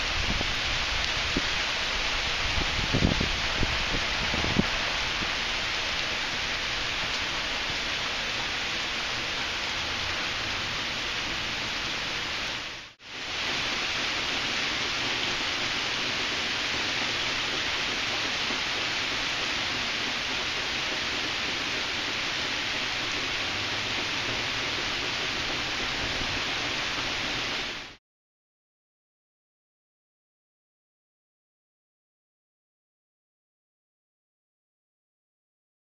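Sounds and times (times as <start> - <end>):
heavy rain on pavement: 0.0 - 28.0.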